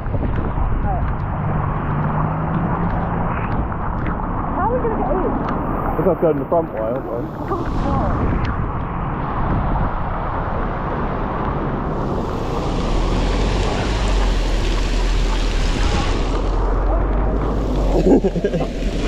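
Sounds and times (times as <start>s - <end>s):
heavy rain pouring: 3.7s - 8.3s, 10.0s - 19.0s.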